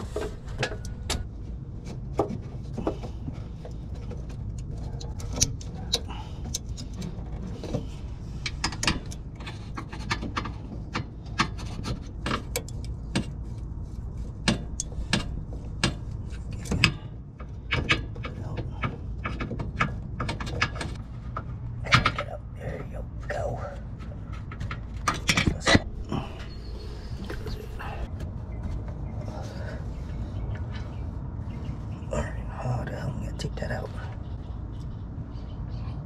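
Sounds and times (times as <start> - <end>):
low hum: 0.0 - 36.0
hand tools clicking and knocking: 2.2 - 13.6, 14.2 - 22.3, 23.5 - 28.1.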